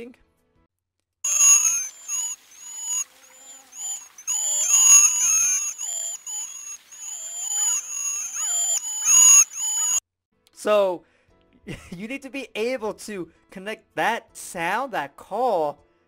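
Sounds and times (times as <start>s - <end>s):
waxwings calling: 1.3s - 10.0s.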